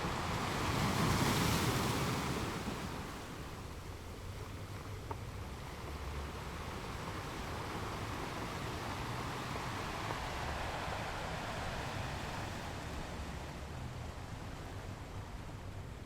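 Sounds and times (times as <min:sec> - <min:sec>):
waves breaking on rocks: 0:00.0 - 0:03.7.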